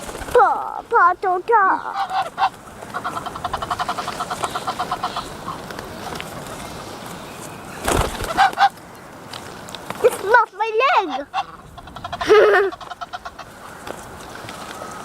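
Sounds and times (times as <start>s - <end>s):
ducks and geese calling: 0.0s - 15.0s.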